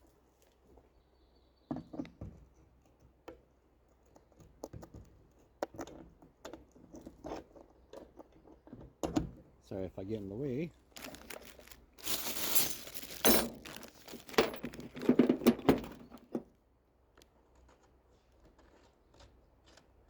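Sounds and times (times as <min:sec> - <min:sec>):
metal parts and tools rustling: 0:10.9 - 0:16.4
metal clinks: 0:11.0 - 0:16.0.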